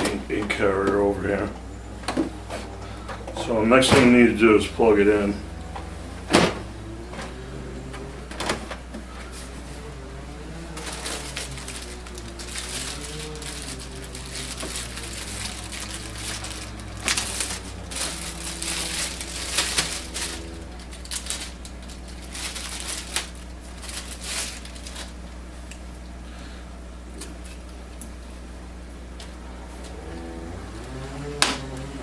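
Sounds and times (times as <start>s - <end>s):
plastic crinkling and rustling: 6.2s - 25.9s.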